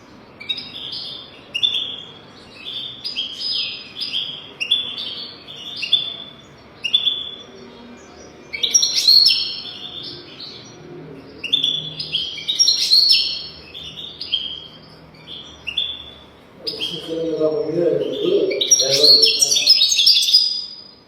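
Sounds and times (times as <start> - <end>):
goldfinch twittering song: 0.2 - 21.0.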